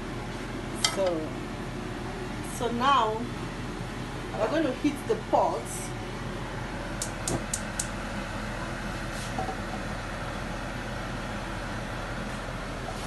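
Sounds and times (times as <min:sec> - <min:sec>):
kitchen background hum: 0:00.0 - 0:13.0
gas hob igniter clicking: 0:07.0 - 0:08.0.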